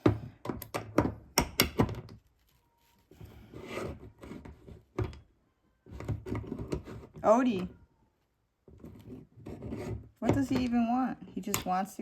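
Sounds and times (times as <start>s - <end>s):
plastic cap clicking and knocking: 0.0s - 2.2s.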